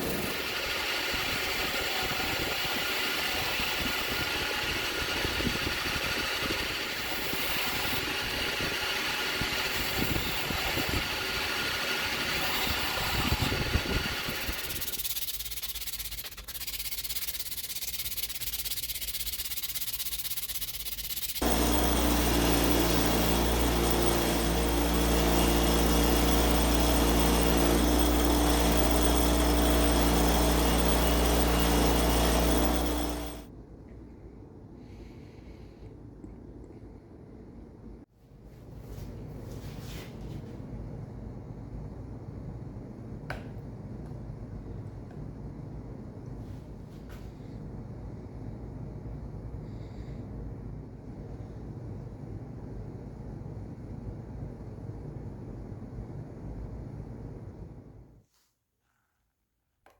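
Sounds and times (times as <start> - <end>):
electric motor hum: 0.0 - 33.5
high hissing: 12.5 - 25.8.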